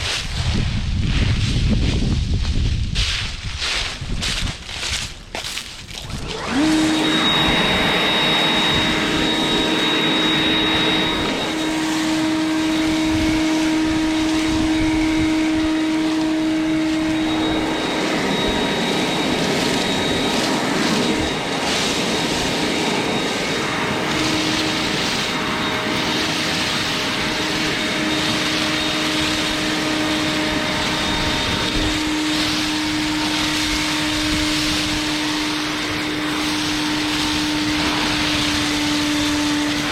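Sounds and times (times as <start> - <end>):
leaf blower whining: 5.8 - 39.9
rush of air: 6.1 - 39.9.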